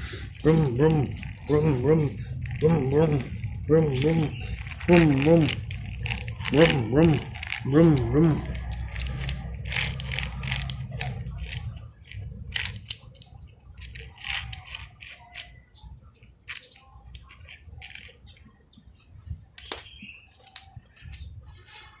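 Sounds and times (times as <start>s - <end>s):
low hum: 0.0s - 14.1s
plastic toys clicking on hard surface: 0.0s - 18.5s.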